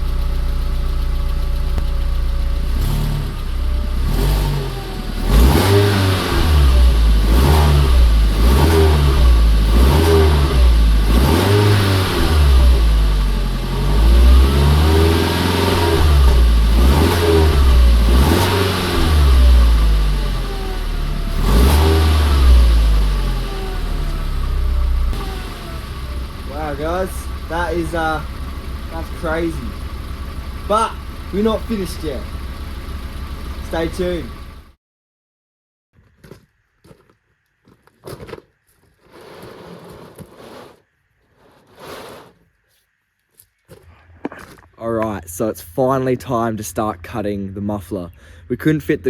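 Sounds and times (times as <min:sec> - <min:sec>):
car engine idling and revving: 0:00.0 - 0:34.8.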